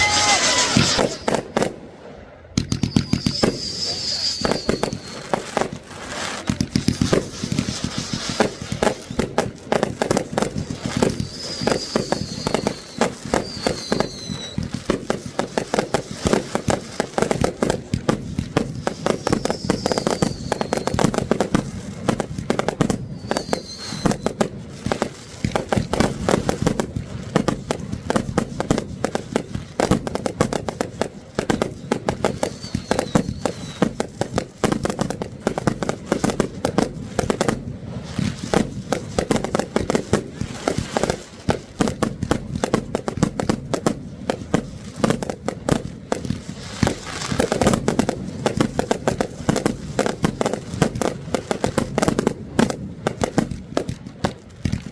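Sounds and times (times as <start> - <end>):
high falling whistle: 0.0 - 1.4, 2.6 - 5.3, 11.1 - 14.6, 19.0 - 21.0, 23.1 - 24.3, 32.4 - 33.9
fireworks bangs and crackles: 0.0 - 54.9.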